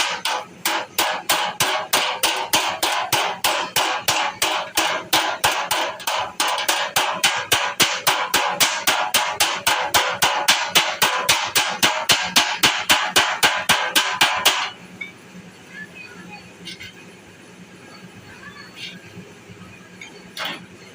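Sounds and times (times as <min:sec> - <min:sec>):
hammer beating sheet metal: 0:00.0 - 0:14.8.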